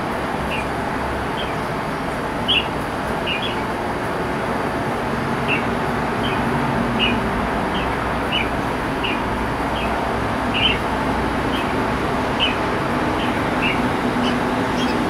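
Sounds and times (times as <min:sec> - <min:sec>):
bird chirping: 0:01.4 - 0:01.7, 0:02.4 - 0:03.6, 0:05.5 - 0:11.8, 0:12.4 - 0:15.0.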